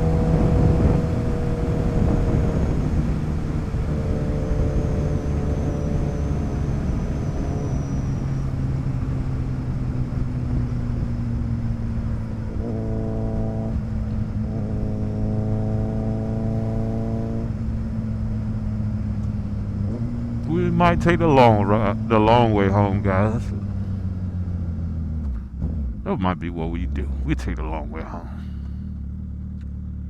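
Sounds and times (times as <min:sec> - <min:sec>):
motorcycle engine cruising: 0:00.0 - 0:20.5.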